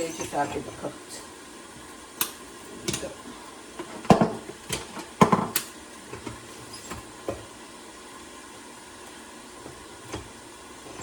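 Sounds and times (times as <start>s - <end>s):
cookware clattering: 0.0s - 0.8s
faint steady hiss: 0.0s - 11.0s.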